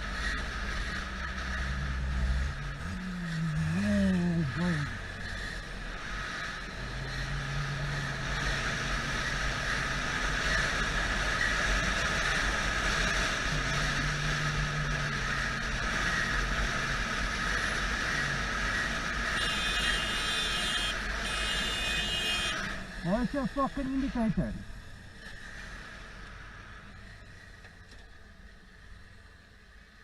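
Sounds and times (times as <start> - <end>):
motorcycle engine running: 0.0 - 26.1
wind and road noise: 0.0 - 30.0.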